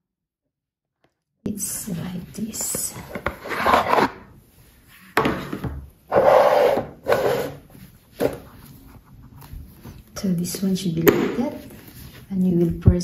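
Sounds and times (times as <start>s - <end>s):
hands rubbing and scraping box: 2.4s - 4.2s.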